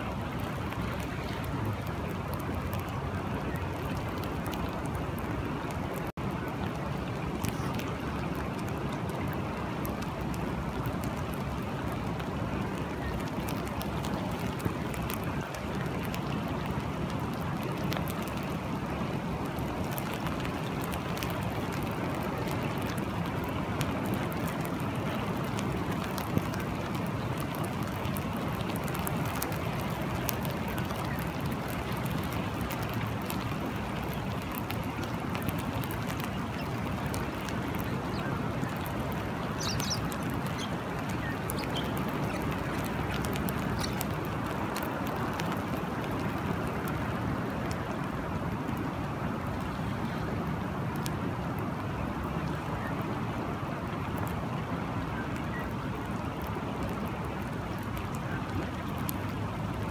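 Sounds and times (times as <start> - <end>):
rain hissing: 0.0 - 59.9
raindrop ticks: 0.0 - 59.9
rush of water: 0.0 - 59.9.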